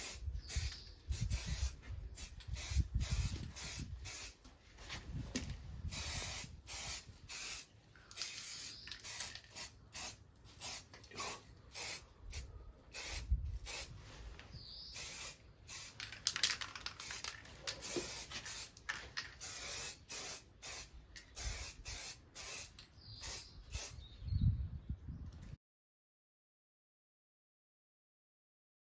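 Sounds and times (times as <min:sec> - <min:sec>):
spray paint hissing: 0:00.0 - 0:04.4, 0:05.8 - 0:14.0, 0:14.6 - 0:24.0.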